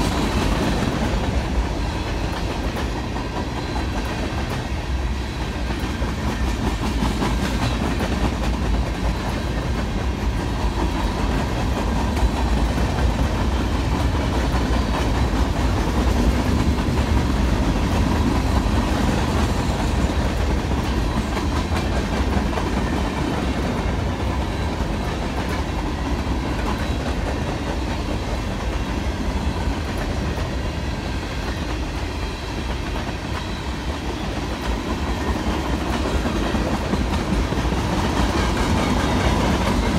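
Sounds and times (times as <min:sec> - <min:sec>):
train wheels clicking over rail joints: 0:00.0 - 0:39.9.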